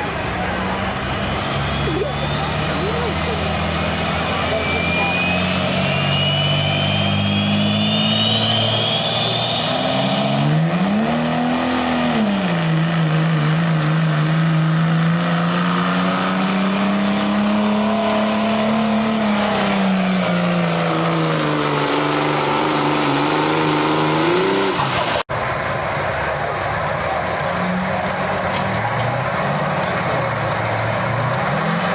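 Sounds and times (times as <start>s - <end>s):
truck engine under heavy load: 0.0s - 31.9s
turbo whistle: 1.5s - 10.7s.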